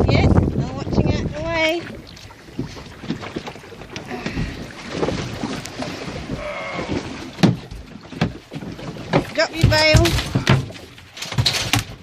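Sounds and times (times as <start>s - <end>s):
wind on microphone: 0.0s - 7.9s
water sloshing around kayak: 0.0s - 12.0s
short knocks and splashes: 0.4s - 12.0s.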